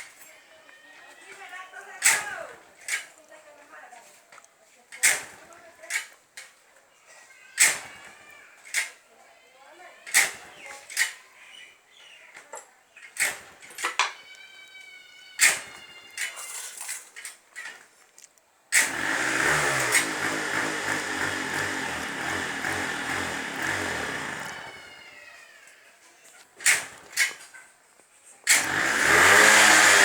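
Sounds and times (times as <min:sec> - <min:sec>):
motorcycle engine running: 0:18.9 - 0:24.9.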